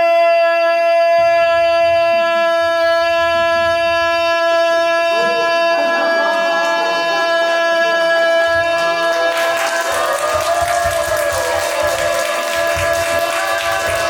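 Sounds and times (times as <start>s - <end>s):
long held horn note: 0.4s - 10.3s
wavering pitched sounds: 1.2s - 10.1s.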